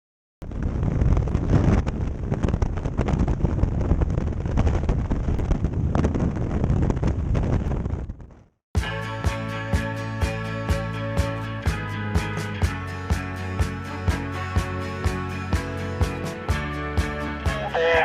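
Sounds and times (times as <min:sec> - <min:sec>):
wind buffeting microphone: 0:00.4 - 0:08.6.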